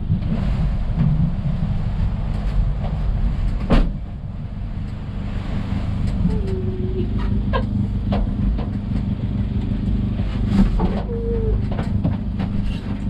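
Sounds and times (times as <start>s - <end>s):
vehicle engine humming: 4.1s - 13.0s.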